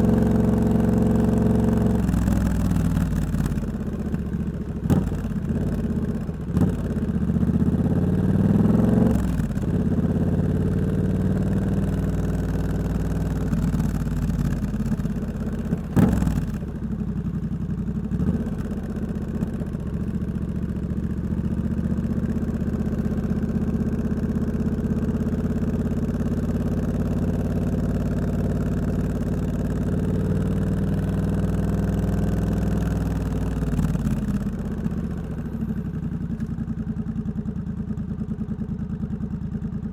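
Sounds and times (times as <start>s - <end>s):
motorcycle engine revving: 0.0s - 16.8s, 22.4s - 35.2s.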